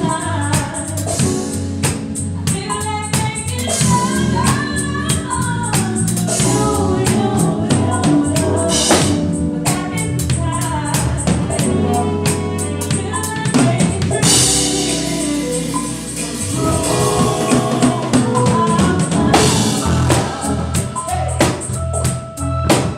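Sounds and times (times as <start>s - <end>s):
drums and cymbals: 0.0s - 22.9s
person singing: 3.4s - 22.8s
band playing: 5.9s - 22.9s.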